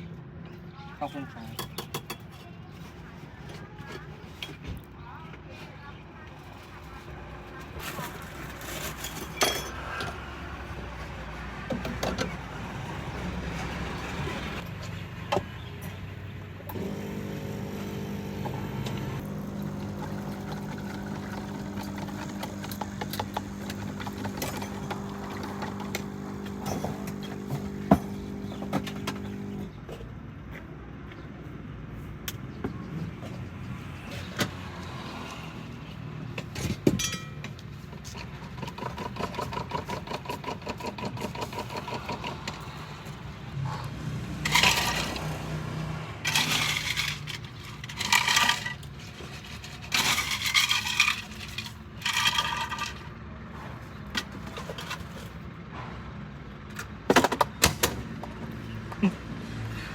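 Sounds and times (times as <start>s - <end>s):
machine hum: 16.7s - 29.7s.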